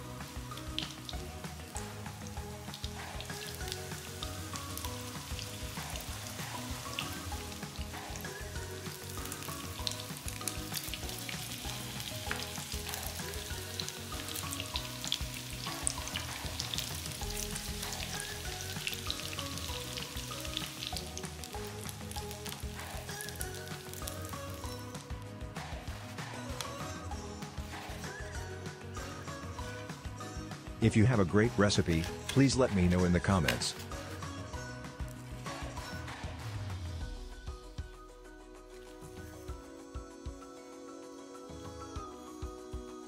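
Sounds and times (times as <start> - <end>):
hot oil sizzling: 0.0 - 30.5, 31.7 - 34.4.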